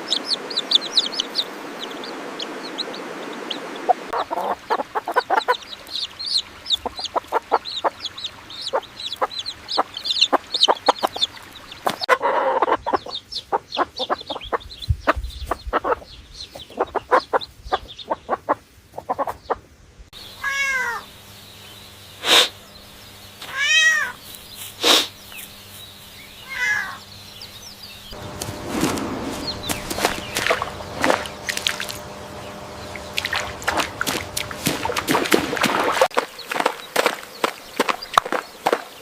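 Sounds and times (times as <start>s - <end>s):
rising-and-falling animal calls: 20.3s - 21.1s, 26.4s - 27.1s
noisy rushing: 28.1s - 36.1s.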